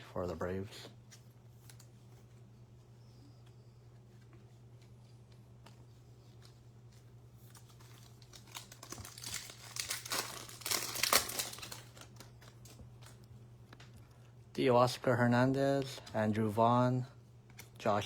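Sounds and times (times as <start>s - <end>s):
foil wrapper crinkling and tearing: 6.9s - 13.3s.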